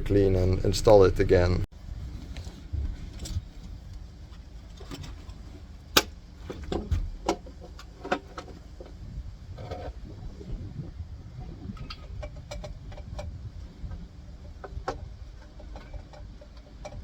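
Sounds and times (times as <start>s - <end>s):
clicks and knocks of parts and tools: 14.5s - 17.0s.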